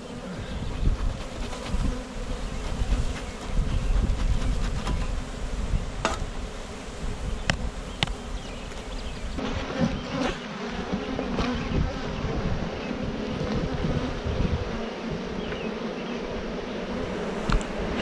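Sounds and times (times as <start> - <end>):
honey bees buzzing: 0.0 - 18.0.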